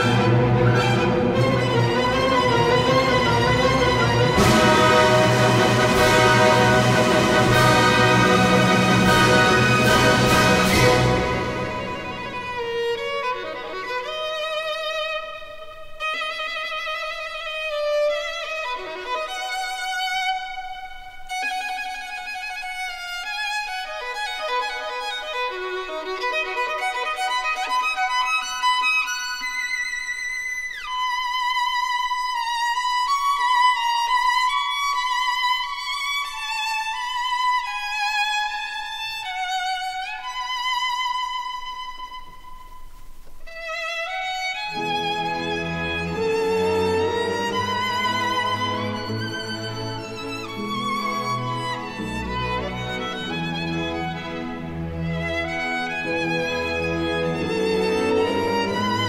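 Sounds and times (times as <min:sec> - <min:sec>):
violin melody with vibrato: 0:00.0 - 0:59.0.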